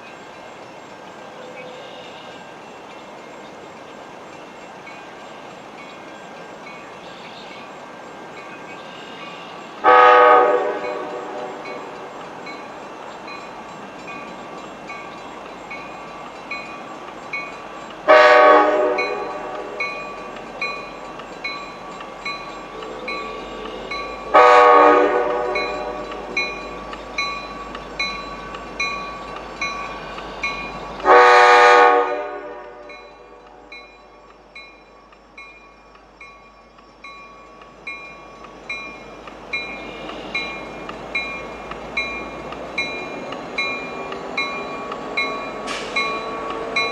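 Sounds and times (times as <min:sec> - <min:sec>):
crossing bell ringing: 0:00.0 - 0:46.9
train horn blasts: 0:09.5 - 0:12.2, 0:18.0 - 0:20.3, 0:22.7 - 0:26.9, 0:31.0 - 0:33.9, 0:45.1 - 0:46.9.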